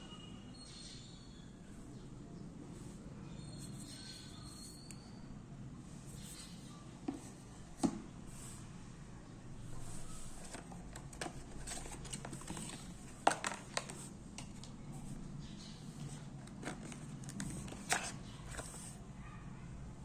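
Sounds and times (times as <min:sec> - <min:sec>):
packaging clicks and taps: 0:10.4 - 0:14.8, 0:16.0 - 0:19.0.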